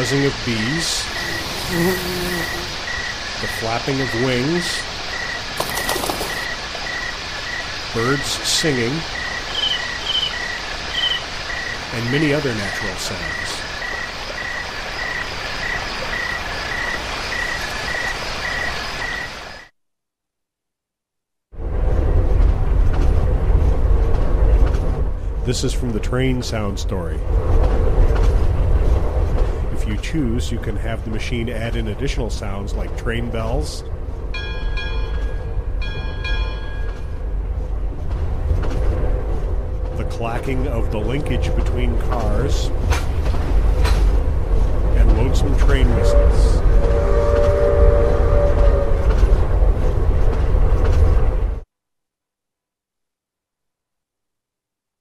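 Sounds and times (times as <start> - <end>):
train rumbling: 0.0 - 19.5, 21.6 - 51.7
steady hiss: 0.0 - 19.6
insects chirping: 0.0 - 19.7
train bell ringing: 34.3 - 37.5.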